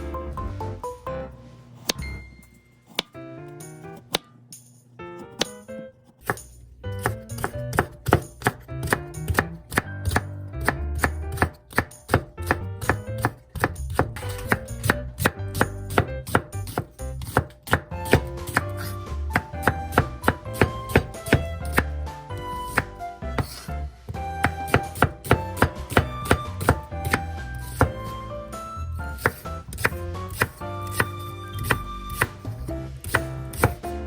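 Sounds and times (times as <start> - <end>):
knife chopping on cutting board: 5.3 - 5.6, 6.2 - 28.1, 29.1 - 34.0.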